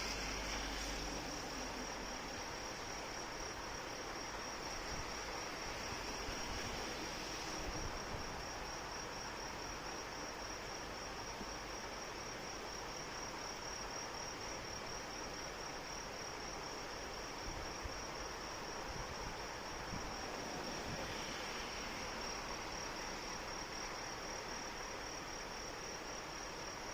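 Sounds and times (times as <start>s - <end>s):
steady rain hiss: 0.0s - 26.9s.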